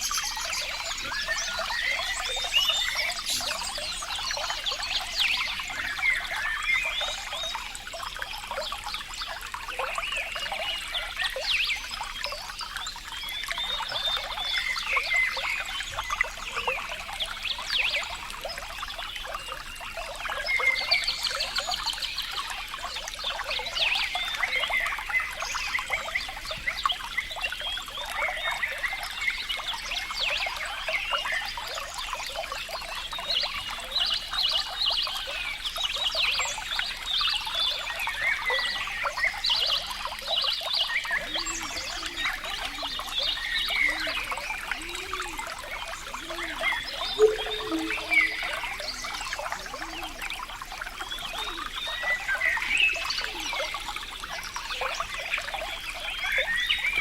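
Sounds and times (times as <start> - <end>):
frogs calling: 0.0 - 7.8, 40.9 - 54.0
water trickling and bubbling: 0.0 - 57.0
low repeated frog croaks: 41.1 - 52.5.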